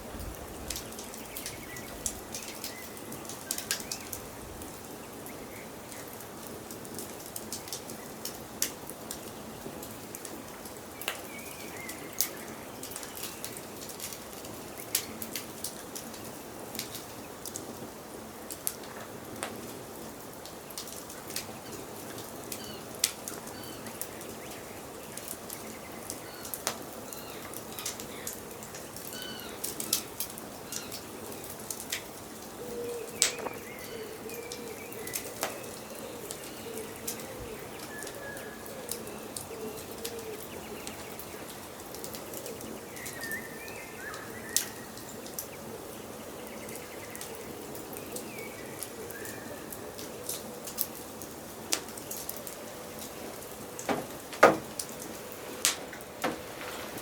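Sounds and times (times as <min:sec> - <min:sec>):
wood fire crackling: 0:00.0 - 0:57.0
birds chirping: 0:00.4 - 0:06.2, 0:21.5 - 0:51.0.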